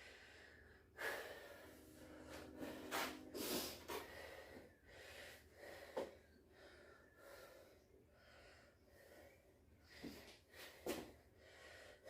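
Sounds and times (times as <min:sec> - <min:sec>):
person breathing hard: 0:00.0 - 0:12.0.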